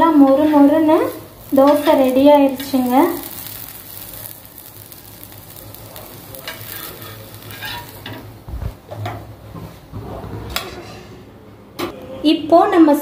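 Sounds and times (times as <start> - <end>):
batter sizzling on griddle: 0.0 - 8.9
spatula scraping griddle: 6.0 - 8.3, 9.6 - 11.2.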